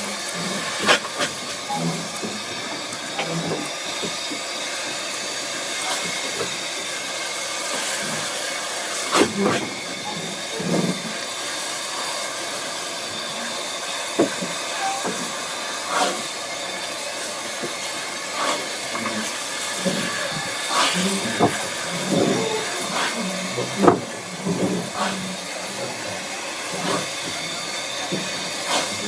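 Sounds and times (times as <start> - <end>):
locomotive exhaust beats: 0.0 - 29.0
steam locomotive hissing: 0.0 - 29.0.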